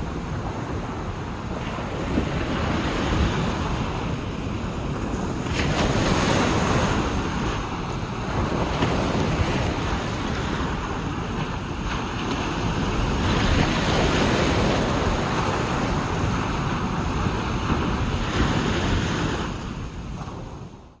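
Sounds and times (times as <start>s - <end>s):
ocean waves washing onto beach: 0.0s - 21.0s
wind buffeting microphone: 0.0s - 21.0s.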